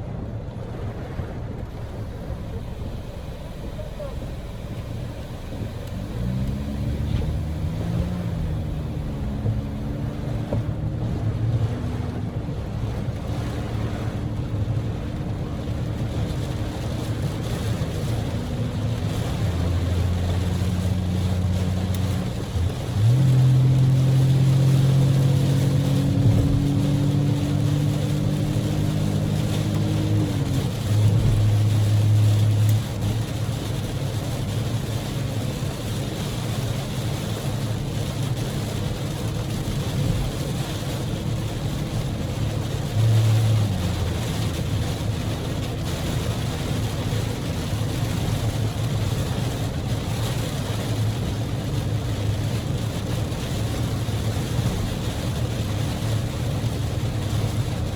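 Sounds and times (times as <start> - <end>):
road noise: 0.0 - 57.9
car engine hum: 0.2 - 57.9
heavy rain hiss: 1.8 - 10.7, 16.1 - 57.9.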